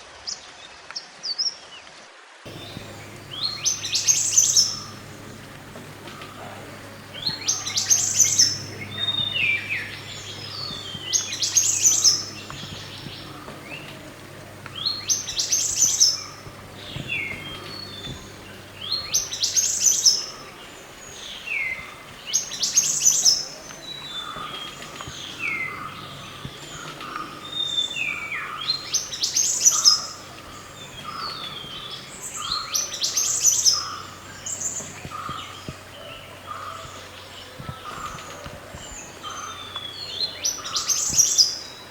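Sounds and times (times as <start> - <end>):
second bird calling: 2.5 - 21.2
low steady hum: 2.5 - 41.0
songbird singing: 2.5 - 41.9.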